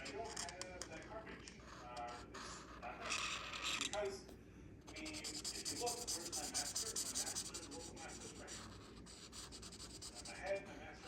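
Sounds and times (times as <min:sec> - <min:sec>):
pencil shading on paper: 0:04.9 - 0:10.7.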